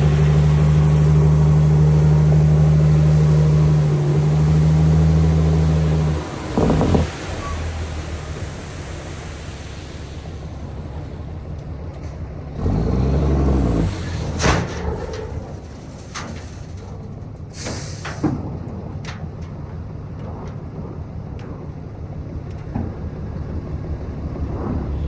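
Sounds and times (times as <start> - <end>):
diesel truck engine running: 0.0 - 21.4, 22.0 - 25.0
air brake hiss: 17.5 - 18.4.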